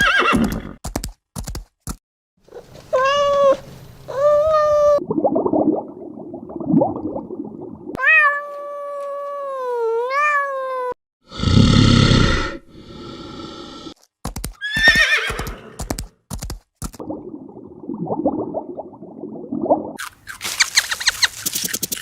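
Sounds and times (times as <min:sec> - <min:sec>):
animal call dipping and rising: 0:14.6 - 0:15.6, 0:20.4 - 0:22.0.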